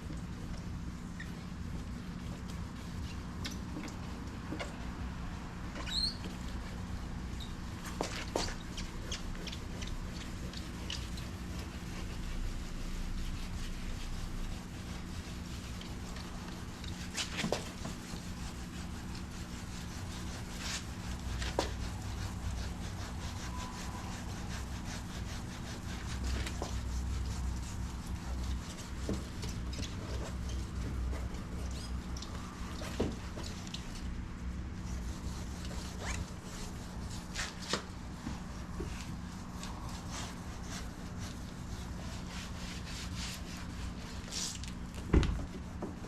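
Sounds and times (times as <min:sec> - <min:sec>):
steady low hum: 0:00.0 - 0:46.0
sandpaper rubbing on plastic: 0:07.6 - 0:32.0, 0:34.8 - 0:44.8.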